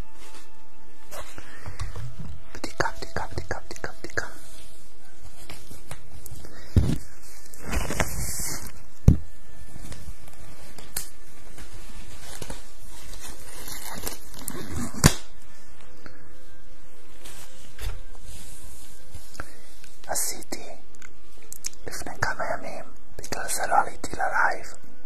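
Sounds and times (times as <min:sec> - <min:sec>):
background hiss: 0:00.0 - 0:25.0
crackly rustling: 0:03.2 - 0:20.1.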